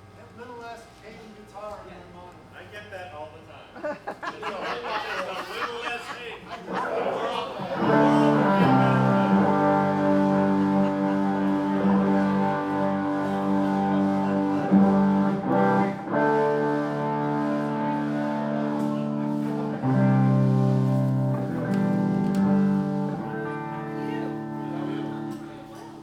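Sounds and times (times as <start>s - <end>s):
live band with guitar chords: 6.6s - 26.0s.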